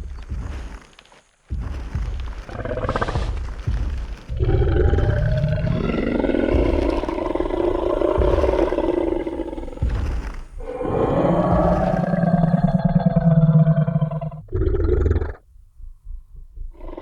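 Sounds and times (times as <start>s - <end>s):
deep stomping footsteps: 0.0s - 17.0s
dinosaur growling and roaring: 2.4s - 15.4s, 16.7s - 17.0s.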